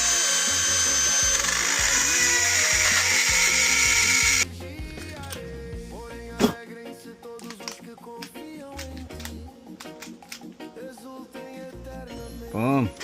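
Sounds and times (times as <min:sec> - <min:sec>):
electric drill whining: 0:00.0 - 0:04.4.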